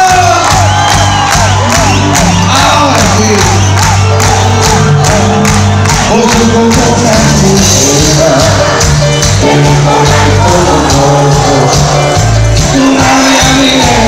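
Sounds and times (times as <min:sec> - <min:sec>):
live band music: 0:00.0 - 0:14.0.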